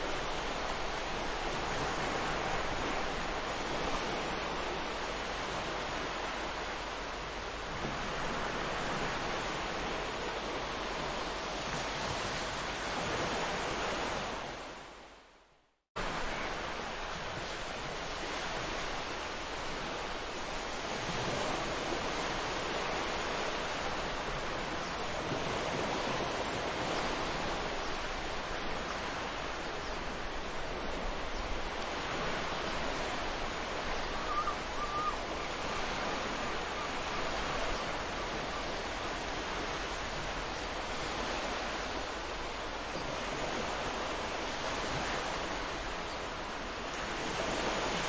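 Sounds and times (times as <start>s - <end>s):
waves breaking on a beach: 0.0s - 48.0s
bird call: 34.0s - 35.3s.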